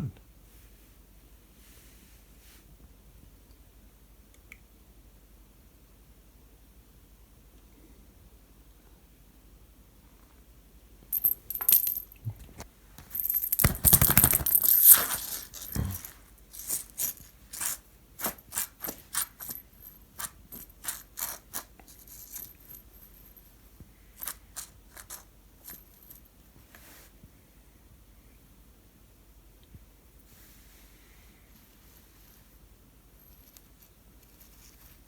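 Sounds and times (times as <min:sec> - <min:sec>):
cat toy rattling and jingling: 0:13.0 - 0:22.7.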